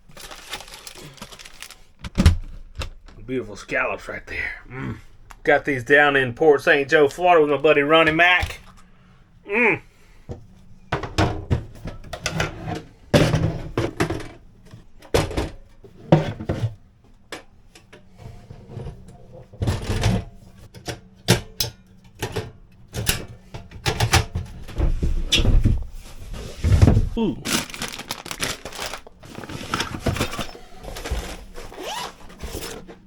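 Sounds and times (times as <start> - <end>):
utensils clattering: 27.5 - 33.0.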